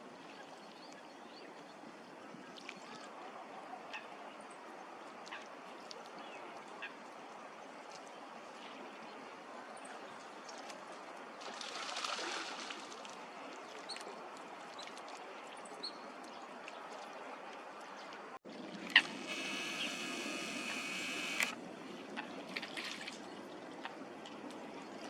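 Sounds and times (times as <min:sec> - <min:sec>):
small birds chirping: 0:19.2 - 0:21.6.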